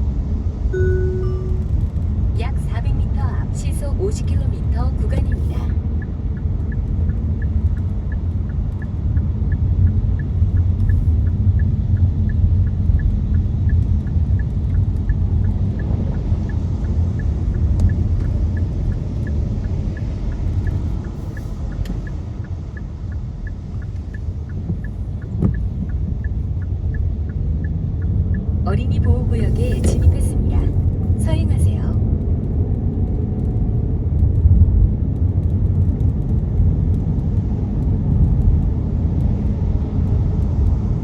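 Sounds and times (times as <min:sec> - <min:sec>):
car road and engine rumble: 0:00.0 - 0:41.0
light ticking: 0:04.0 - 0:33.6.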